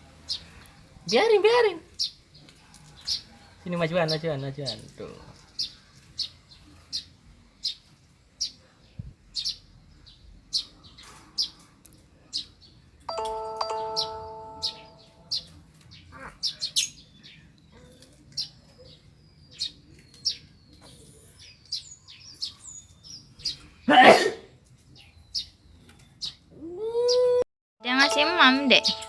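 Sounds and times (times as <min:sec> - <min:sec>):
lovebirds chirping: 0:00.2 - 0:23.9, 0:24.5 - 0:27.2, 0:27.8 - 0:29.0
electronic two-note chime: 0:13.1 - 0:15.2, 0:27.8 - 0:29.0.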